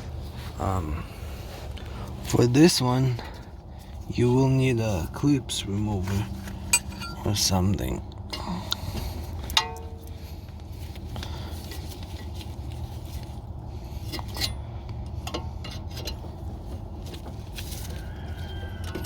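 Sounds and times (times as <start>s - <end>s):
steady low hum: 5.6s - 17.4s
sharp metallic clink: 6.7s - 7.5s.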